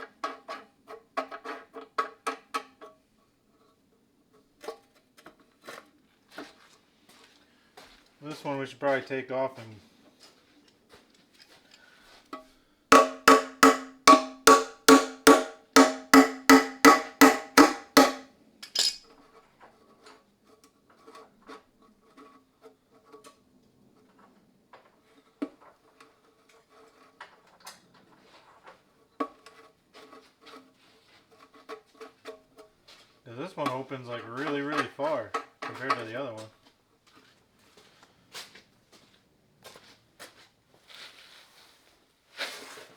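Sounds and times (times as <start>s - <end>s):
hammer striking metal: 12.9s - 18.2s
tools clicking and tapping: 12.9s - 19.0s.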